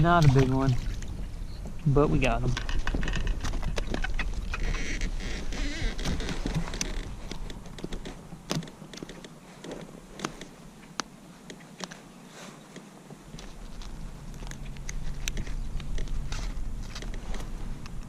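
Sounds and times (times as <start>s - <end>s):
wind rumble on microphone: 0.0s - 9.0s, 13.2s - 18.0s
light clicks and taps on kayak: 6.0s - 18.0s.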